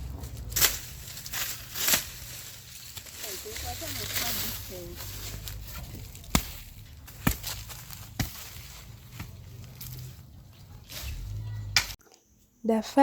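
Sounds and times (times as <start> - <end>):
digging tool chopping into soil: 6.1 - 9.3.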